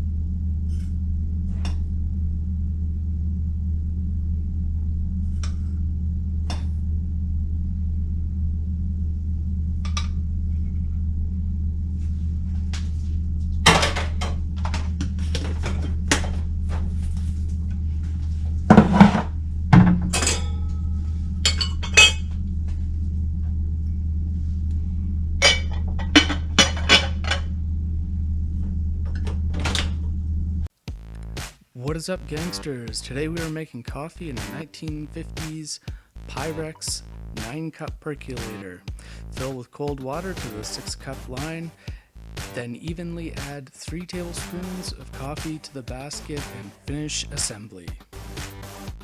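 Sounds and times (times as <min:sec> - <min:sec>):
steady low hum: 0:00.0 - 0:49.0
glass and metal clinking: 0:21.5 - 0:22.2.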